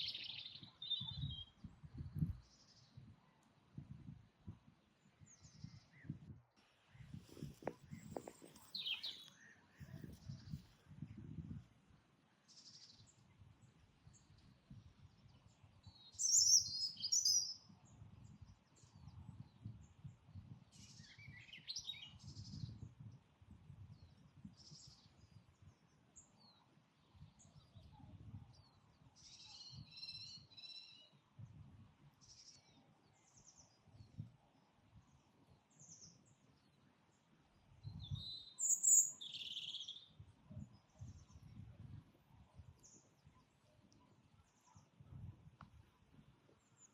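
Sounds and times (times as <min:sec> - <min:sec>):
birds chirping: 0:07.4 - 0:09.5, 0:38.4 - 0:39.8.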